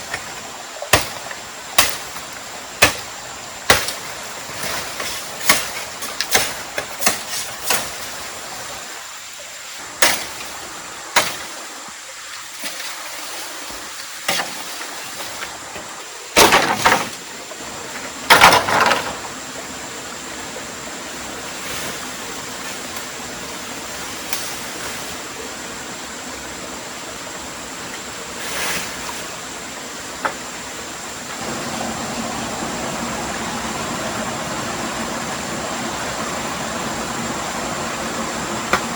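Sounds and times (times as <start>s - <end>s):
water rushing: 0.0s - 38.9s
sharp knocks and cracks: 0.1s - 3.1s, 3.7s - 8.1s, 10.0s - 10.5s, 11.2s - 11.5s, 16.4s - 17.2s, 18.3s - 19.2s.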